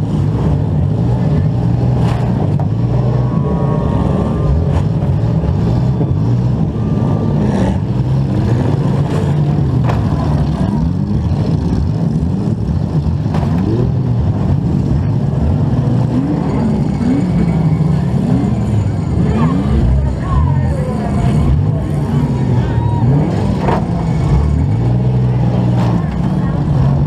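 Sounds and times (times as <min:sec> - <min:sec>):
car engine revving: 0:00.0 - 0:27.0
other car engines: 0:00.0 - 0:27.0
cars crashing together: 0:22.2 - 0:27.0.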